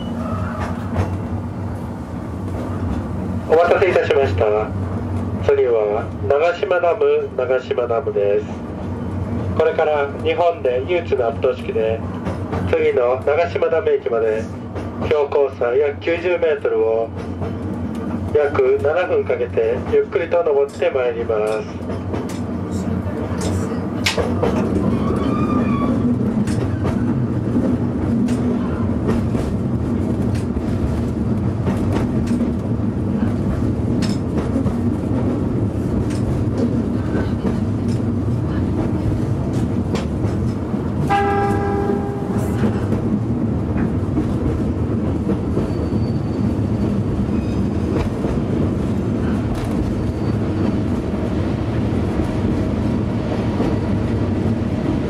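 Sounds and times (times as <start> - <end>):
train running rumble: 0.0 - 55.0
train horn blast: 41.0 - 42.6.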